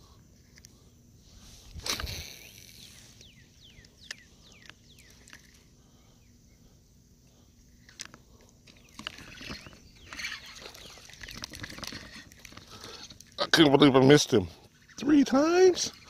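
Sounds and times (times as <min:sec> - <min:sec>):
fishing reel clicks and rustling: 0:01.6 - 0:05.7, 0:07.8 - 0:16.0.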